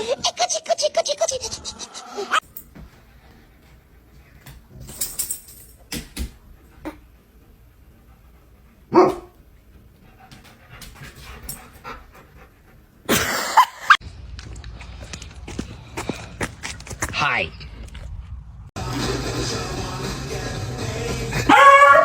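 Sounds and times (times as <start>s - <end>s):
dog panting: 6.4s - 13.1s
dog barking: 8.9s - 9.4s, 21.4s - 22.0s.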